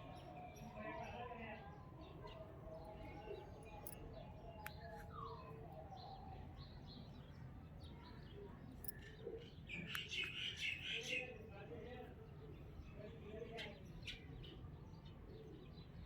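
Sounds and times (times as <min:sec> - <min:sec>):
low steady background noise: 0:00.0 - 0:16.0.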